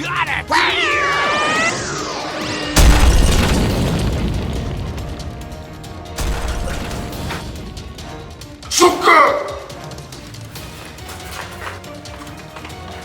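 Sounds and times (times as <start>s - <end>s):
background music: 0.0s - 13.0s
booming explosion with rumble: 2.7s - 8.0s.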